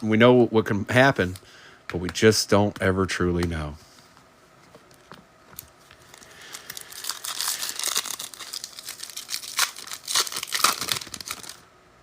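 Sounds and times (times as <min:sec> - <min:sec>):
foil wrapper tearing and crinkling: 0:06.0 - 0:11.6.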